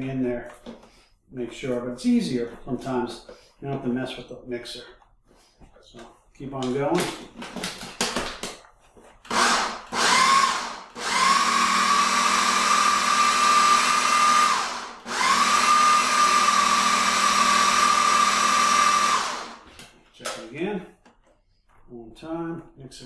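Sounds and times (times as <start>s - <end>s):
blender motor running: 9.3s - 19.7s.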